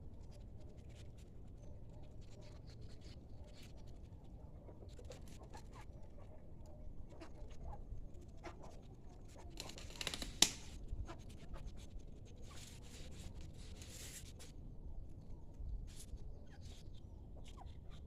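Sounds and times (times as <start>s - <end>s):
dry palm fronds rustling: 9.6s - 10.8s
frond snapping: 9.6s - 10.8s.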